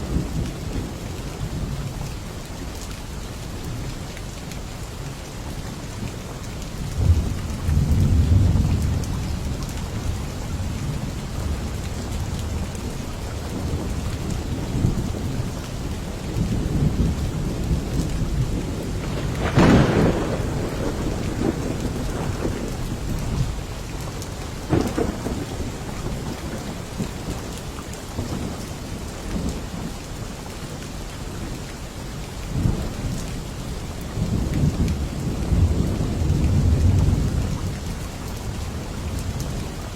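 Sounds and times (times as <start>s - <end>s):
heavy rain: 0.0s - 39.9s
rolling thunder: 7.0s - 15.7s, 16.3s - 24.0s, 24.7s - 27.4s, 34.1s - 39.9s
loud thunderclap: 18.5s - 23.6s, 24.7s - 26.7s.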